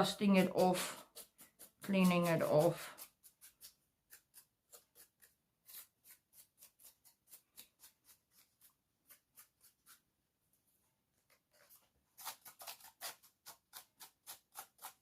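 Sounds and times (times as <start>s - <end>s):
brush swishing: 0.0s - 10.1s.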